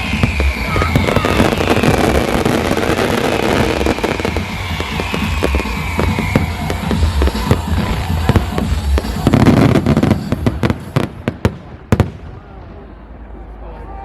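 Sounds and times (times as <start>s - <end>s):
fireworks cracking and banging: 0.0s - 12.4s.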